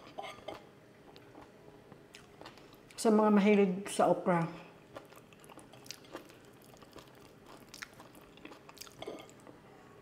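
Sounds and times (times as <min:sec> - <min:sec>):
person chewing food: 0:00.1 - 0:03.0, 0:04.8 - 0:09.6.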